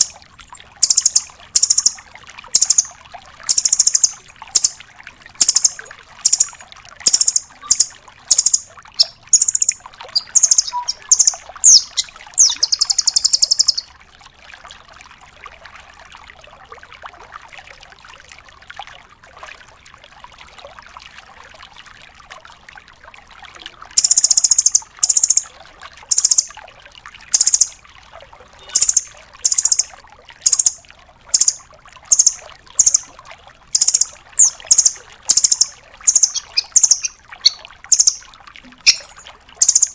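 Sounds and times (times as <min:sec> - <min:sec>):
bird rapid trill: 0:00.0 - 0:00.2, 0:00.8 - 0:02.9, 0:03.5 - 0:04.8, 0:05.4 - 0:13.9, 0:24.0 - 0:25.5, 0:26.1 - 0:26.5, 0:27.4 - 0:27.7, 0:28.6 - 0:33.1, 0:33.8 - 0:38.2, 0:38.8 - 0:39.9
bird calling sharp high notes: 0:00.8 - 0:02.0, 0:02.6 - 0:02.9, 0:03.5 - 0:04.8, 0:05.4 - 0:13.9, 0:28.6 - 0:29.9, 0:30.5 - 0:33.1, 0:33.8 - 0:39.9.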